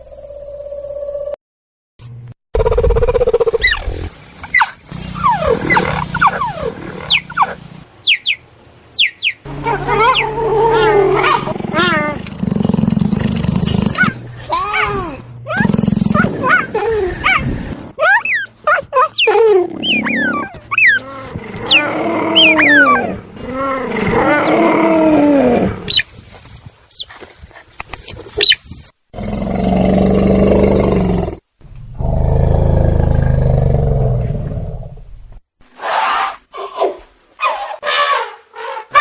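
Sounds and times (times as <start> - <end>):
low loud animal roars: 9.5 - 14.2, 19.6 - 25.9
animal squeals: 18.0 - 23.1.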